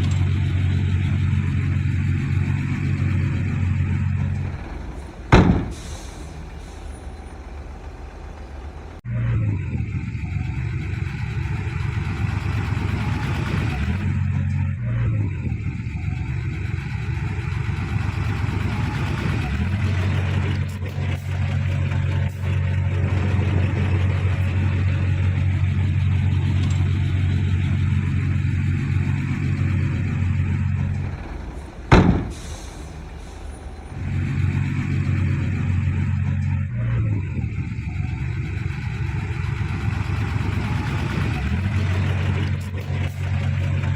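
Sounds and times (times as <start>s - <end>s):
heavy diesel engine droning: 0.0s - 43.9s
sudden loud knocks: 5.3s - 6.1s, 31.9s - 32.6s.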